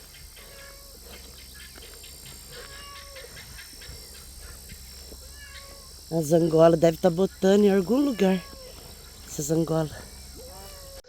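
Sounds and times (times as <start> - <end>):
cat meowing: 0.4 - 1.0, 2.5 - 3.4, 5.2 - 6.0, 7.9 - 8.8.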